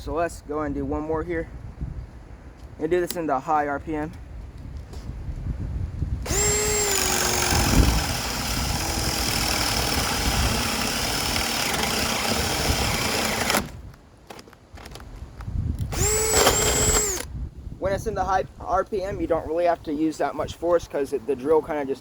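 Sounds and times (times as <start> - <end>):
cordless drill boring wood: 6.2 - 13.8, 15.9 - 17.3.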